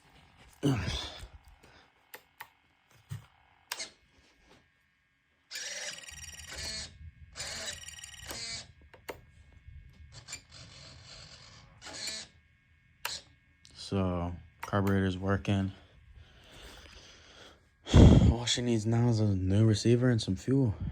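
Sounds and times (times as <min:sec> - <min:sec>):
servos whirring: 0:03.7 - 0:04.0, 0:05.5 - 0:09.3, 0:10.0 - 0:12.4, 0:13.0 - 0:13.3.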